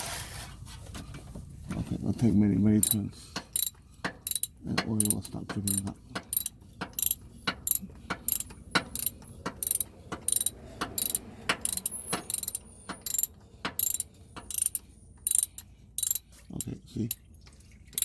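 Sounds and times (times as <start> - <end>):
ratchet wrench clicking: 2.8 - 16.2.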